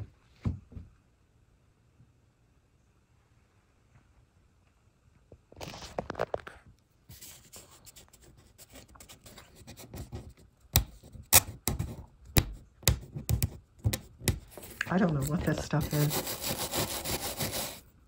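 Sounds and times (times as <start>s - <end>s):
scratching and scraping on surface: 5.6s - 17.8s.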